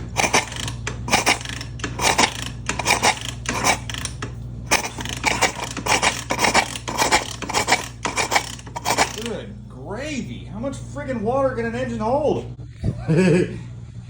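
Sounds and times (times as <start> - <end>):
engine being turned over: 0.0 - 9.4.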